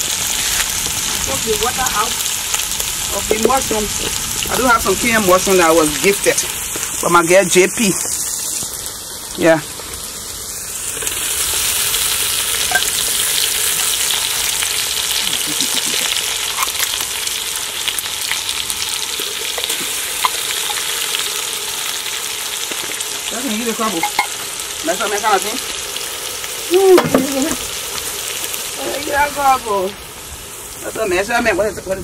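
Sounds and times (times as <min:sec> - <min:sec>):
mushrooms sizzling in hot oil: 0:00.0 - 0:32.0.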